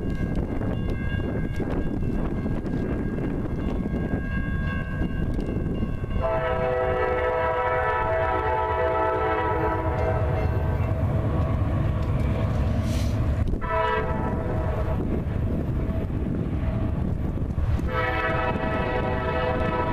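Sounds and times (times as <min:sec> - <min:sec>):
train rumble: 0:00.0 - 0:19.9
locomotive air horn blast: 0:06.2 - 0:10.3, 0:12.8 - 0:15.0, 0:17.8 - 0:19.9.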